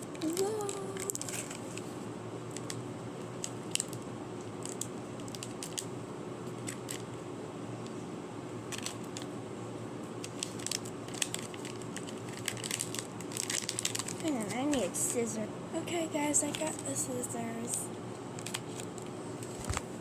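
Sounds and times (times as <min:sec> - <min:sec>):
steady low hum: 0:00.0 - 0:20.0
packaging clicks and crinkles: 0:00.1 - 0:01.9, 0:02.5 - 0:05.9, 0:06.6 - 0:07.1, 0:08.7 - 0:09.3, 0:10.2 - 0:15.2, 0:17.7 - 0:19.8.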